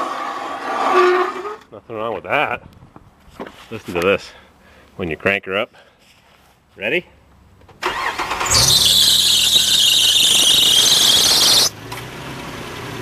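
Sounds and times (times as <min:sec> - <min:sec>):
engine cranking and idling: 0:07.8 - 0:12.1
high-pitched belt squeal: 0:07.9 - 0:11.7.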